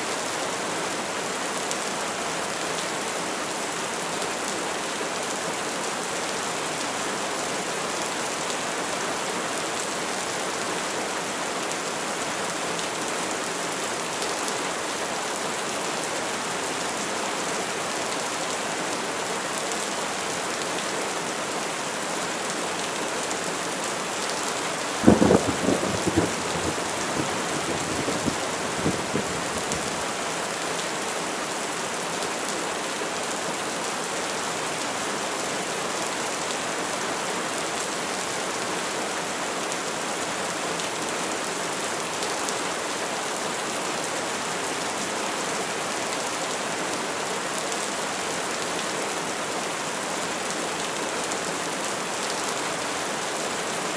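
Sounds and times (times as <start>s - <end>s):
steady rain falling: 0.0s - 53.9s
thunder crack and rumble: 25.0s - 30.0s.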